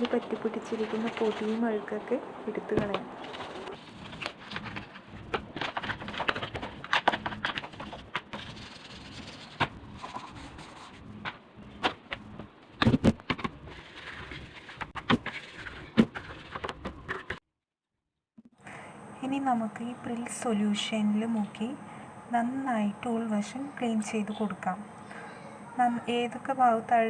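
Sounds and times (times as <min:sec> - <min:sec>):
toothbrush scrubbing and scraping: 0:07.1 - 0:11.3.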